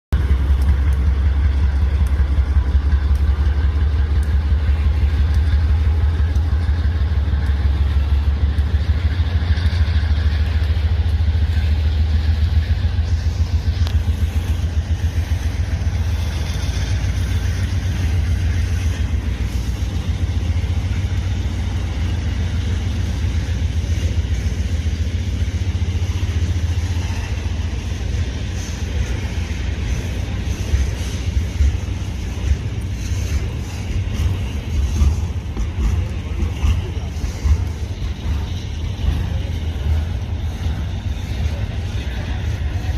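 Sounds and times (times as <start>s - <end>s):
freight train rumbling past: 0.1s - 42.9s.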